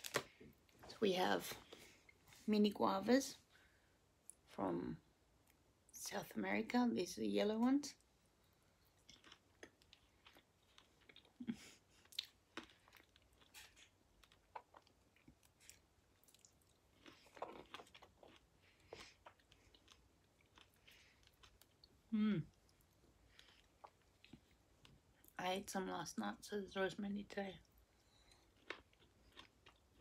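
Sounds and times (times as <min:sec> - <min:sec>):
chewing and biting fruit: 0:14.2 - 0:21.9.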